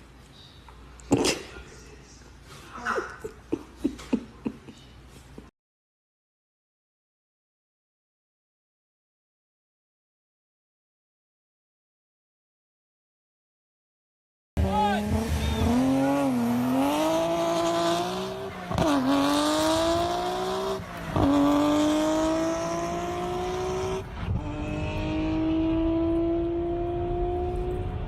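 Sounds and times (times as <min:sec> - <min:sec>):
engine accelerating: 0:14.6 - 0:28.0.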